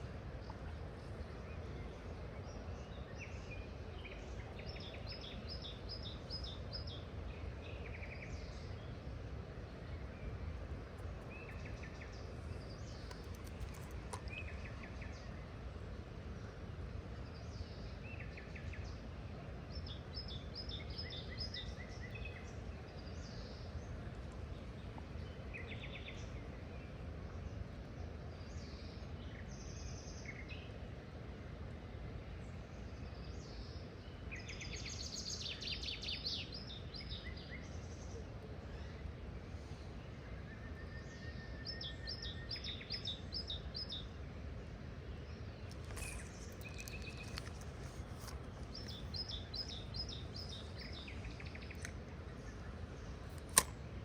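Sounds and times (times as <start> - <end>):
wild birds chirping: 9.9 - 15.7, 33.4 - 54.0.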